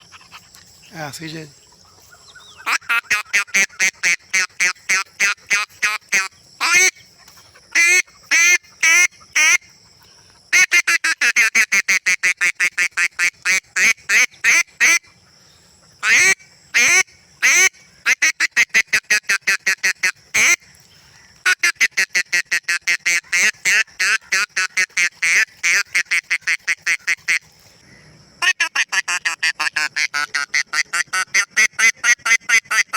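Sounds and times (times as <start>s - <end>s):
duck call quacks: 2.6s - 7.0s, 7.8s - 9.6s, 10.5s - 15.1s, 16.0s - 20.6s, 21.4s - 27.4s, 28.4s - 32.9s.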